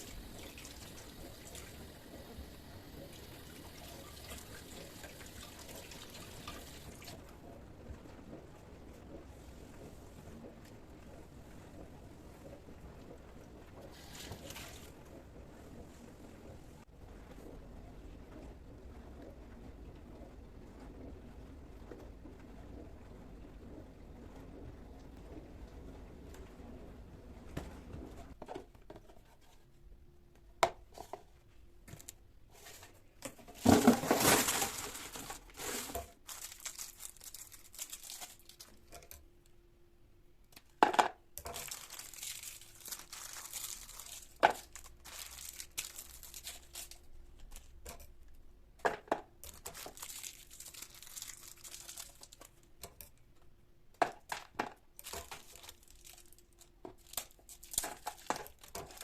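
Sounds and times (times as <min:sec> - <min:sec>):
rustling: 0:31.9 - 0:38.9, 0:41.5 - 0:47.8, 0:49.4 - 0:52.6, 0:55.0 - 0:59.0.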